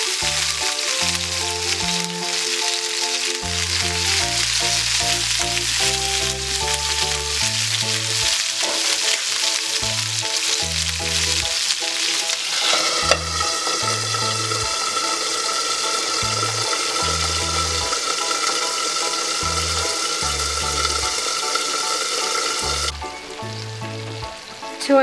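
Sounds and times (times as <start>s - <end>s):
background music with bass: 0.0s - 2.2s, 3.4s - 8.4s, 9.8s - 11.6s, 16.2s - 17.9s, 19.4s - 21.2s, 22.6s - 25.0s
chicken sizzling in frying pan: 0.0s - 25.0s
glass lid clinking onto pan: 12.6s - 13.8s.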